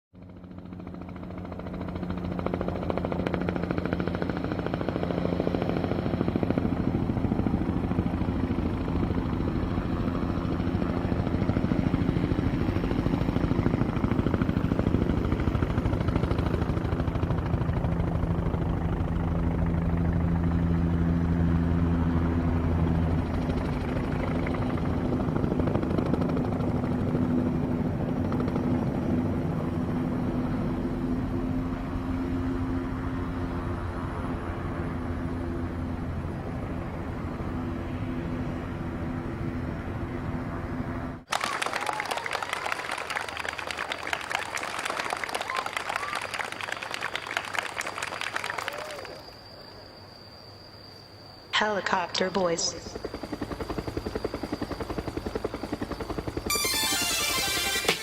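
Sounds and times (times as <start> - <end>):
helicopter rotor chop: 0.2 - 39.2, 51.6 - 58.0.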